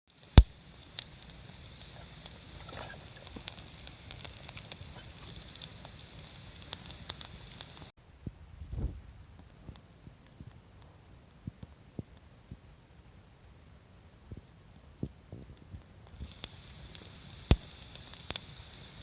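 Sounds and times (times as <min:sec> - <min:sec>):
campfire crackling and popping: 0:00.1 - 0:07.9, 0:09.3 - 0:19.0
insects droning: 0:00.1 - 0:07.9, 0:16.1 - 0:19.0.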